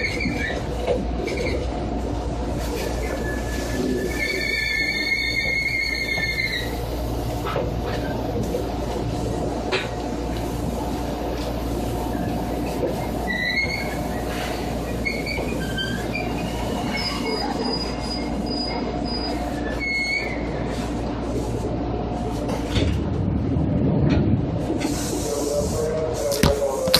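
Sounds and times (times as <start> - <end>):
wheel squeals: 0.0 - 0.7, 2.9 - 6.8, 13.0 - 20.8
train motor and rail hum: 0.0 - 26.9
low rumble: 21.9 - 25.9.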